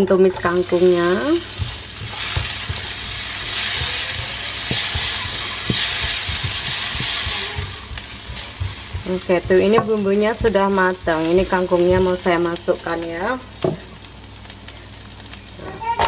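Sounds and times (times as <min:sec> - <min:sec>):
vegetables sizzling in hot oil: 0:00.1 - 0:16.0
spatula knocking against pan: 0:01.5 - 0:12.2.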